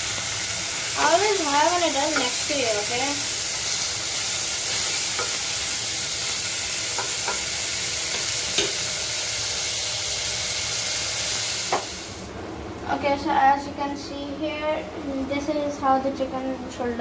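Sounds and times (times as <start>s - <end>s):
chicken sizzling in oil: 0.0s - 12.3s.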